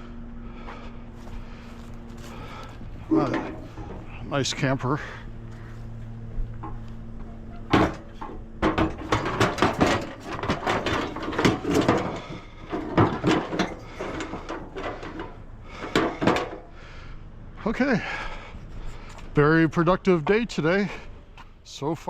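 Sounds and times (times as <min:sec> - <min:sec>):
steady low hum: 0:00.0 - 0:22.0
scrap knocking and rattling: 0:01.2 - 0:04.2, 0:05.0 - 0:16.8.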